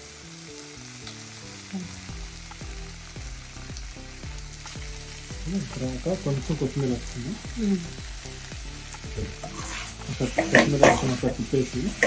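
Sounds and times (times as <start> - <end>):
background music with held notes: 0.0 - 12.0
liver frying in oil: 0.0 - 12.0
regular beat of thuds: 8.6 - 9.6.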